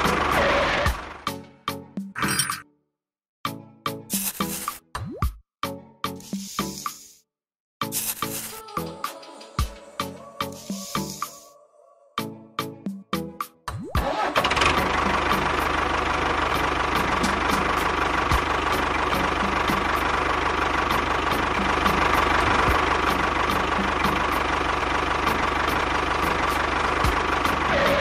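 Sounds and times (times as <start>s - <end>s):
tractor engine running: 0.0s - 1.4s, 14.0s - 28.0s.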